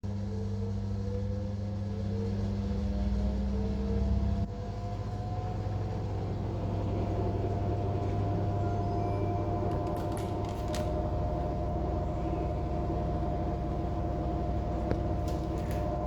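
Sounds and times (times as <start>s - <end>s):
air conditioner hum: 5.3s - 16.0s.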